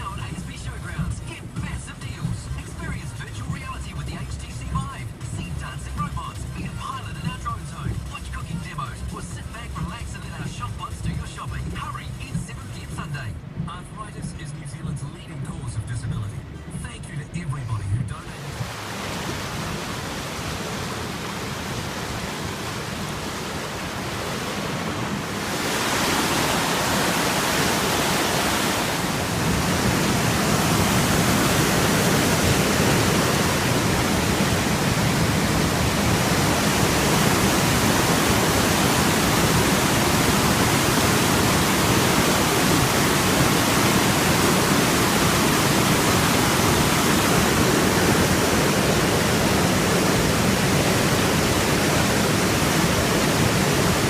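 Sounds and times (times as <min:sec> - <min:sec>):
creek water rushing: 0:18.2 - 0:54.0.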